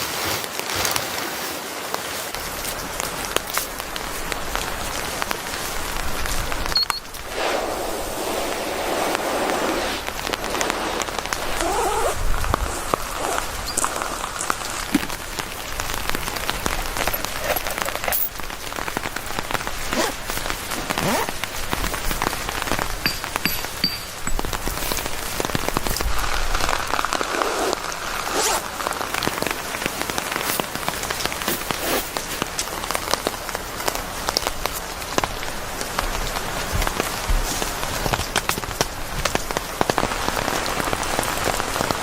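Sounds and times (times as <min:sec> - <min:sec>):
rain pattering on surface: 0:00.0 - 0:42.0.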